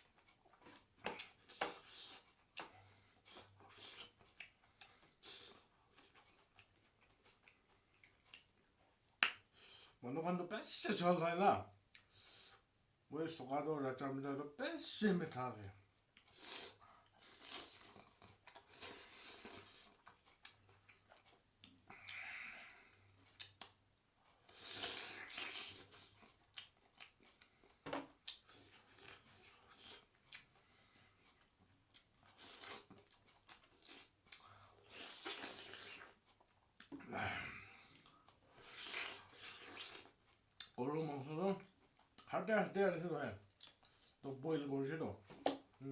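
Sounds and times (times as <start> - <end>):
food being chewed and torn: 0.0 - 9.5, 16.1 - 22.2, 23.2 - 37.0, 37.9 - 40.8, 43.5 - 44.2.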